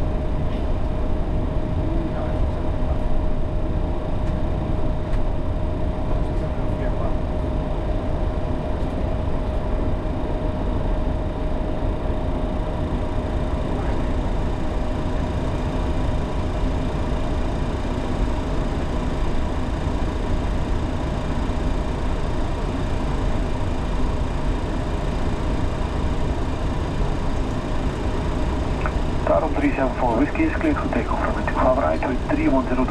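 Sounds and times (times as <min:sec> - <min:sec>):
jet engines idling: 0:00.0 - 0:32.9
steady hum: 0:00.0 - 0:32.9.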